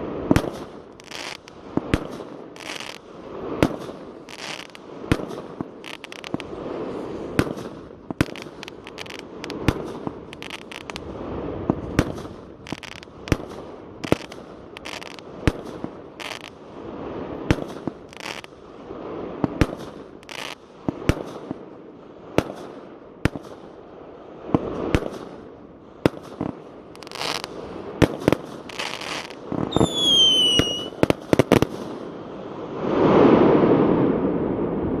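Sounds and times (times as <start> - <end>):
fireworks bangs and crackles: 0.0 - 35.0
falling firework whistle: 28.7 - 31.0.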